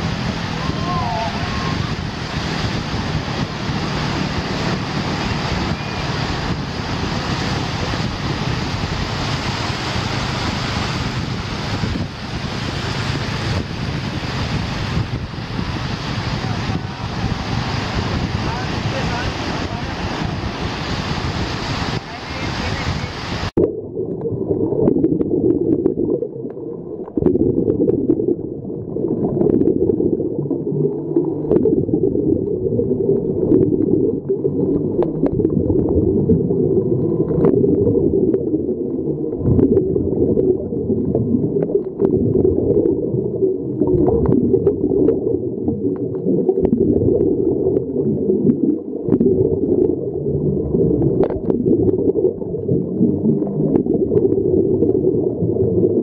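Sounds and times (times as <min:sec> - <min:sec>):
underwater rumble of moving water: 0:00.0 - 0:56.0
faint clicks and crackles: 0:23.6 - 0:31.8, 0:32.4 - 0:56.0.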